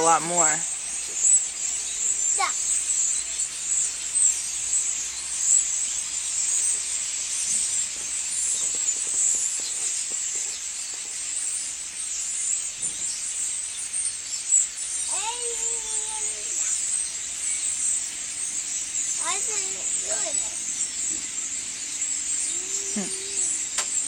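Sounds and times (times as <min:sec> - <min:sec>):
flock of birds chattering: 0:00.0 - 0:24.0.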